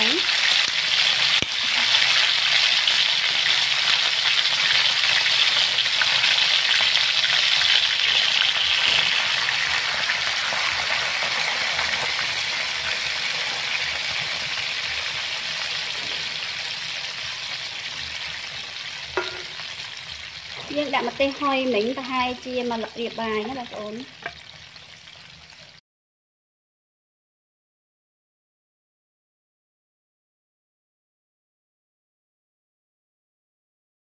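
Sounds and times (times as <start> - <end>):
chicken frying in hot oil: 0.0 - 25.8.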